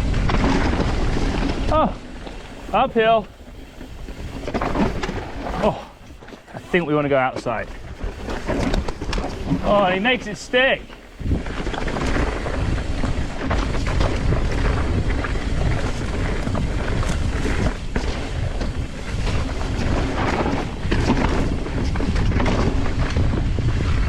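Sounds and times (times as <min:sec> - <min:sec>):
bike knocking and rattling: 0:00.0 - 0:24.0
bike tyres on dirt and rock: 0:00.0 - 0:24.0
wind buffeting microphone: 0:00.0 - 0:24.0.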